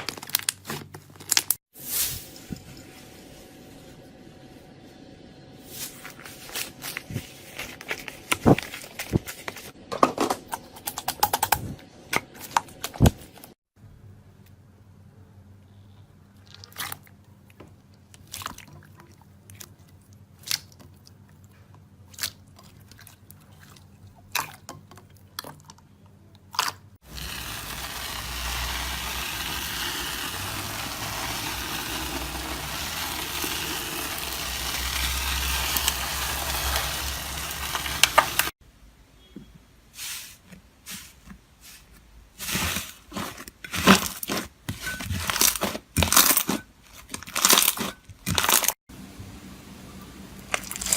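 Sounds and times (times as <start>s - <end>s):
pops and crunches: 26.6s - 38.5s, 42.5s - 48.8s, 50.5s - 50.9s
slime crackling and squishing: 26.6s - 38.5s, 42.4s - 48.8s.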